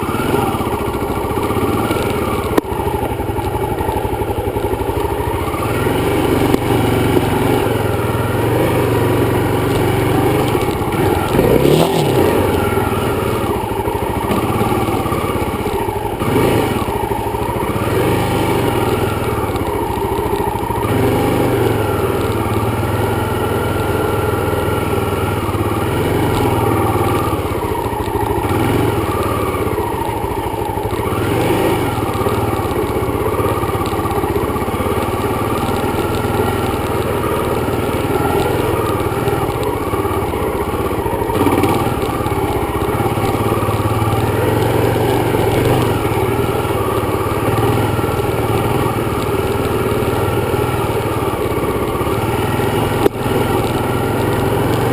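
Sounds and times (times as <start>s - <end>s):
dirt bike engine running: 0.0s - 54.9s.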